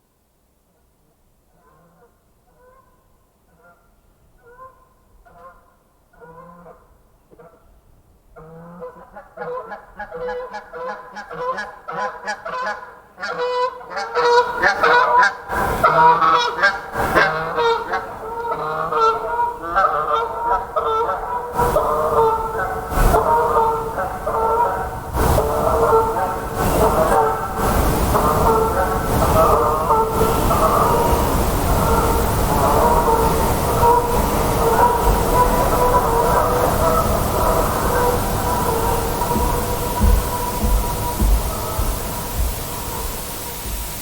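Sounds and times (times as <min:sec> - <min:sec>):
geese honking: 0:08.8 - 0:44.0.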